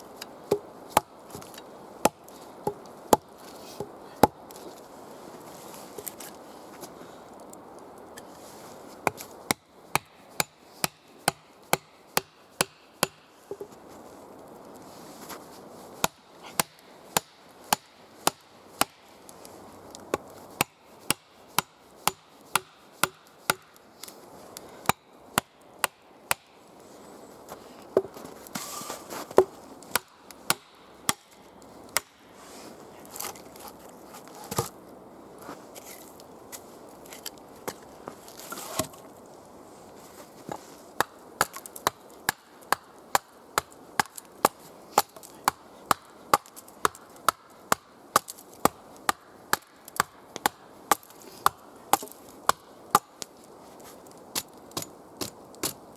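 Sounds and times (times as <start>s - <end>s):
axe chopping wood: 0.5s - 4.4s, 9.0s - 13.8s, 16.0s - 19.2s, 20.1s - 23.8s, 24.8s - 26.6s, 29.3s - 32.2s, 41.0s - 53.3s, 54.4s - 55.8s.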